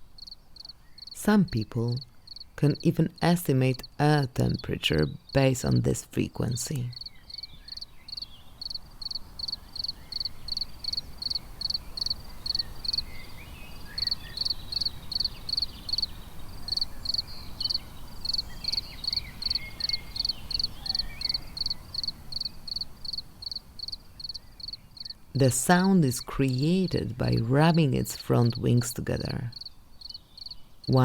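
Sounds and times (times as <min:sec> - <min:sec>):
cricket chirping: 0:00.0 - 0:04.0, 0:06.9 - 0:25.3, 0:29.5 - 0:31.0.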